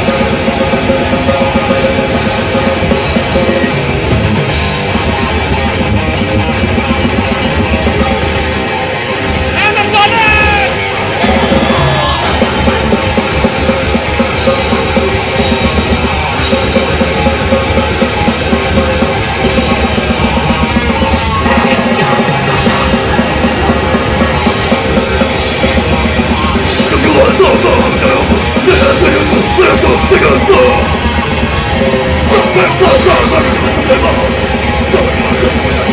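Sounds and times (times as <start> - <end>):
distorted guitars: 0.0 - 35.9
fast drumming: 0.0 - 35.9.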